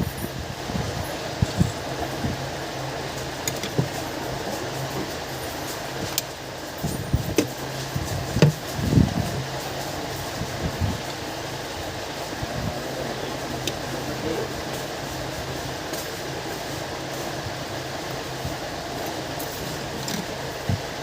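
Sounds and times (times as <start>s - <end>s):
low fan-like hum: 0.0s - 21.0s
tools clicking and tapping: 3.4s - 3.9s.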